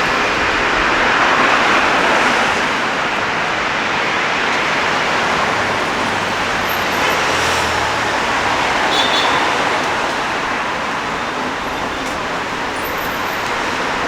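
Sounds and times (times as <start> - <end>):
cars passing: 0.0 - 14.0.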